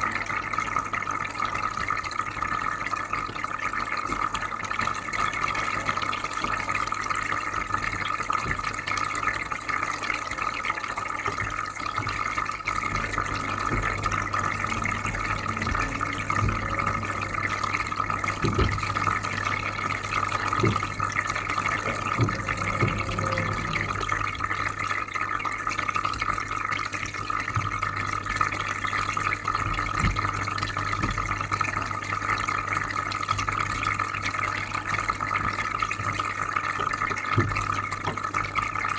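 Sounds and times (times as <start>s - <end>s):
water bubbling and trickling: 11.2s - 38.9s
aquarium filter humming: 11.6s - 38.9s.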